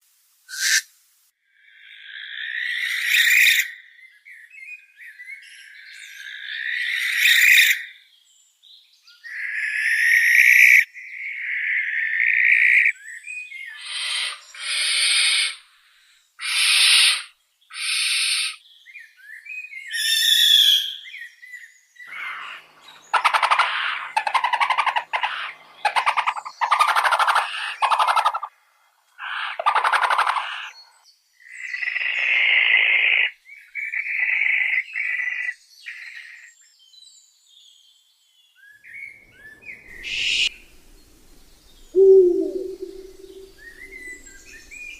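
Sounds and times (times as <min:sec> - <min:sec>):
owl screeching: 0:00.5 - 0:00.9, 0:02.4 - 0:03.8, 0:13.8 - 0:15.6, 0:16.4 - 0:18.6, 0:23.2 - 0:28.5, 0:29.2 - 0:30.7, 0:40.0 - 0:40.6, 0:42.0 - 0:44.5.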